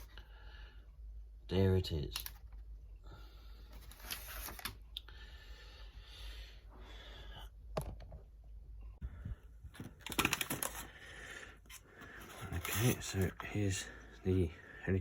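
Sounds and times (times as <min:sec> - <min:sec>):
plastic packaging rustling: 0:09.7 - 0:11.1.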